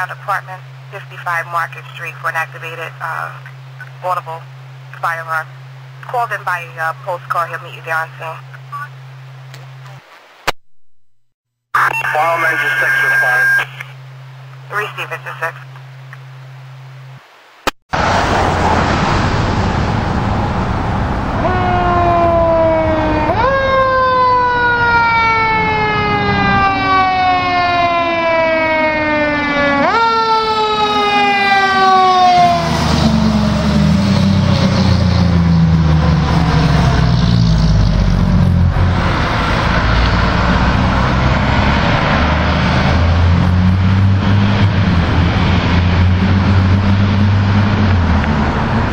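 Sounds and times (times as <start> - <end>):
road noise: 0.0 - 10.5, 11.8 - 48.9
truck engine rumble: 18.0 - 29.2, 30.2 - 48.9
fire engine siren wailing: 18.9 - 48.1.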